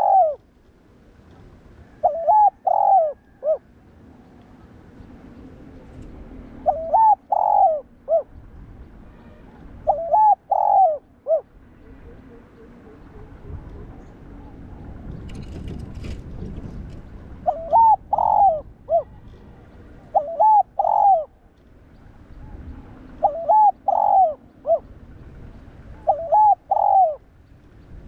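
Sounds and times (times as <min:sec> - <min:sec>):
dove cooing: 0:00.0 - 0:00.4, 0:01.9 - 0:03.7, 0:06.6 - 0:08.4, 0:09.8 - 0:14.5, 0:17.4 - 0:21.4, 0:22.8 - 0:24.9, 0:26.0 - 0:27.2.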